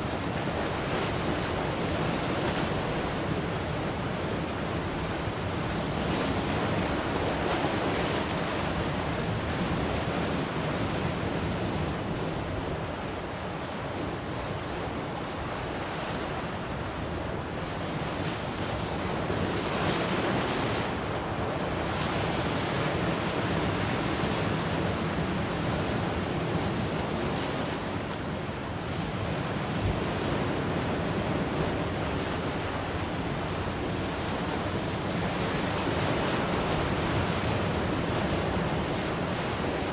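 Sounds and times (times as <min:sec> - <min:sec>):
ocean waves breaking: 0:15.2 - 0:39.9.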